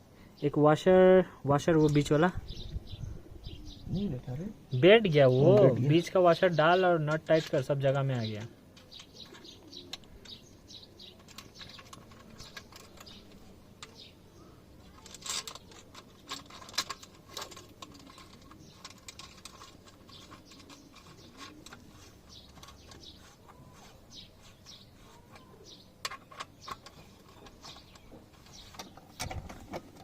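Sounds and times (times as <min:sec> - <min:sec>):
faint bird chirps: 0:08.1 - 0:29.3.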